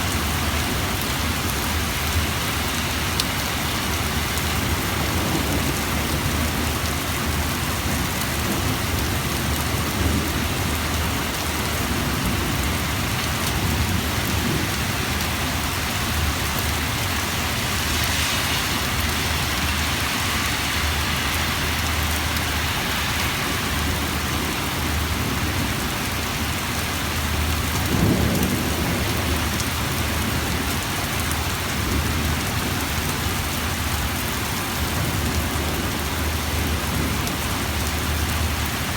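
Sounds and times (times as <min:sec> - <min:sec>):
heavy rain pouring: 0:00.0 - 0:38.9
thunder rumble: 0:03.6 - 0:38.9.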